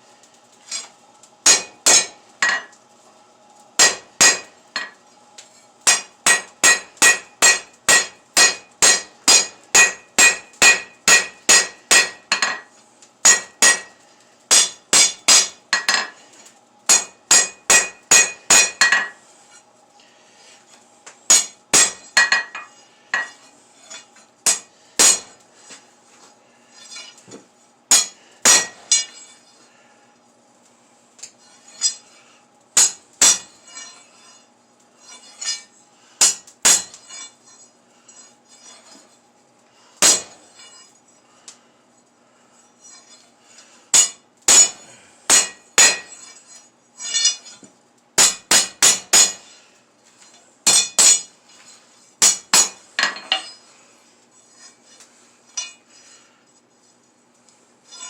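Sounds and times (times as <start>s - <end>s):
hammer ringing on anvil: 1.5s - 2.7s, 3.8s - 4.9s, 5.9s - 12.6s, 13.3s - 13.9s, 16.9s - 19.1s, 21.3s - 23.3s, 24.5s - 25.3s, 27.9s - 29.1s, 44.0s - 46.2s.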